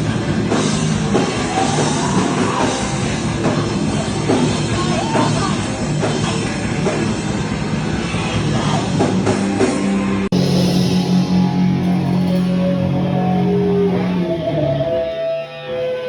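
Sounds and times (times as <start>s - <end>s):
rock band playing loud: 0.0s - 8.0s, 10.3s - 16.0s
drums: 0.0s - 16.0s
distorted electric guitar: 10.3s - 16.0s.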